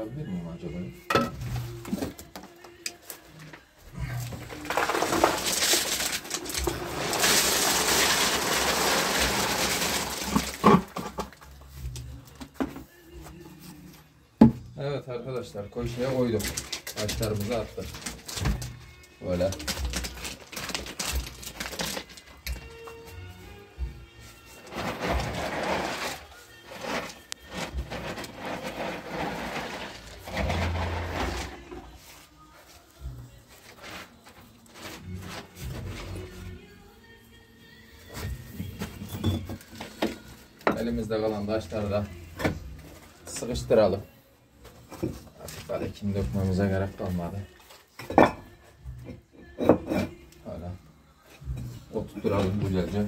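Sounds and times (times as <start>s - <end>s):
gravel pouring: 4.6s - 11.0s, 24.7s - 31.8s.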